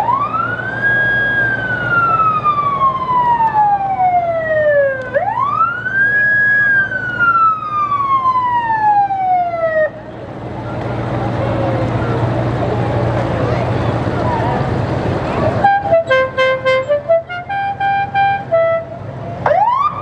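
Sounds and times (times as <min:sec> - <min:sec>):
siren wailing: 0:00.0 - 0:10.0, 0:10.6 - 0:16.1, 0:19.4 - 0:20.0.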